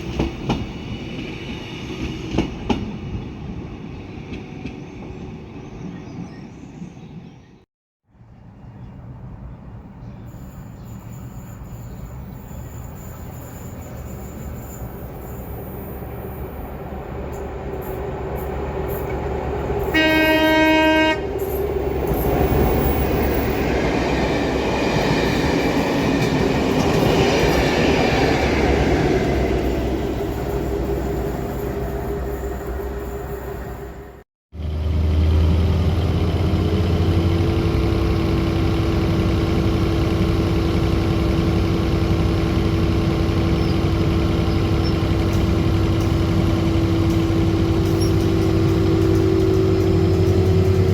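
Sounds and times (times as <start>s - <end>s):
train rumbling past: 0.0s - 7.4s, 9.1s - 50.9s
train horn: 19.8s - 21.6s.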